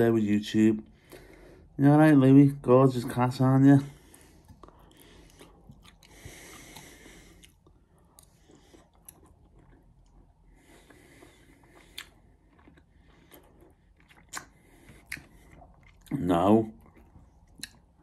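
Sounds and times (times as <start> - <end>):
man chewing food: 3.8 - 18.0.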